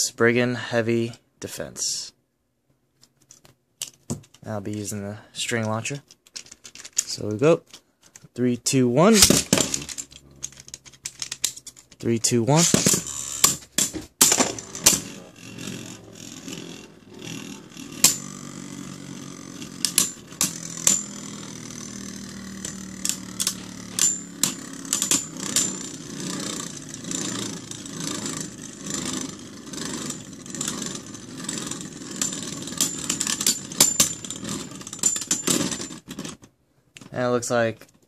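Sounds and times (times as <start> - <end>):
spinning tops clacking: 9.0 - 36.0
spinning tops whirring: 9.0 - 36.4.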